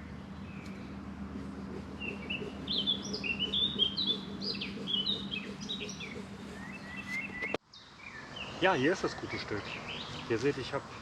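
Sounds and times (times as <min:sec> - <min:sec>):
steady low hum: 0:00.0 - 0:07.6
songbirds whistling: 0:00.0 - 0:10.4.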